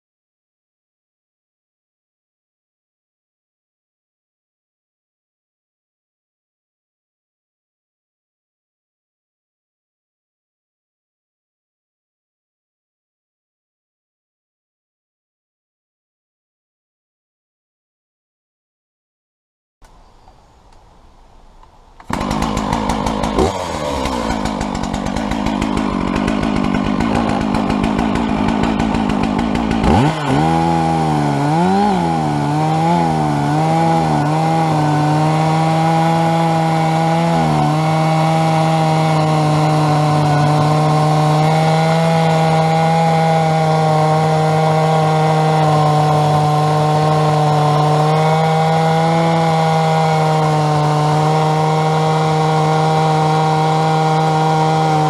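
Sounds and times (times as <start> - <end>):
chainsaw milling a log: 22.0 - 55.0.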